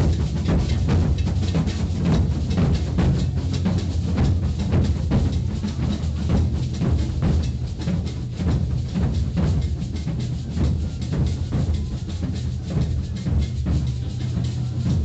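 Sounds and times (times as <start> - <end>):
drum ensemble playing: 0.0 - 15.0.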